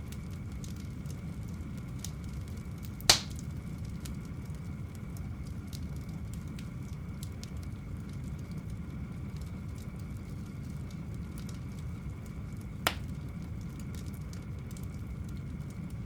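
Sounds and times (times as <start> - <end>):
campfire crackling: 0.0 - 16.0
loud sharp pop of fire: 3.1 - 3.5, 12.9 - 13.2.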